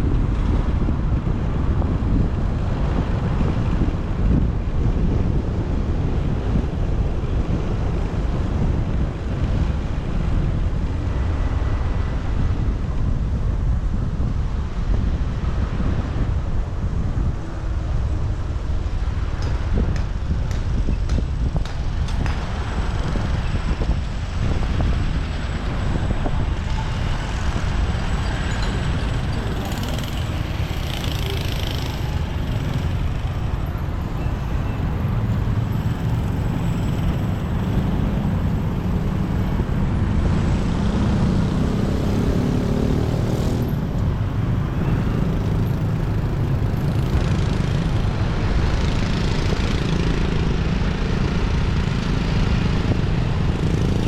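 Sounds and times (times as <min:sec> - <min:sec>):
street traffic noise: 0:00.0 - 0:54.0
motorcycle engine running: 0:20.6 - 0:39.8.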